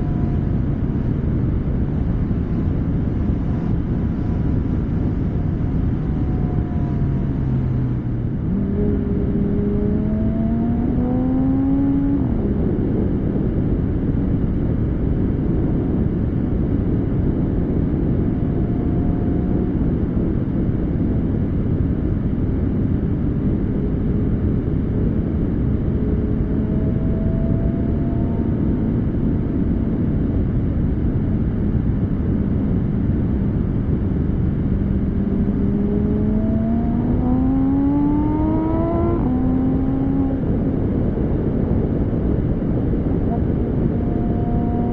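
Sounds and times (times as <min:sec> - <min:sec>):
sports car engine pulling: 0:00.0 - 0:12.8, 0:25.0 - 0:29.3, 0:34.0 - 0:41.0
constant rushing noise: 0:00.0 - 0:44.9.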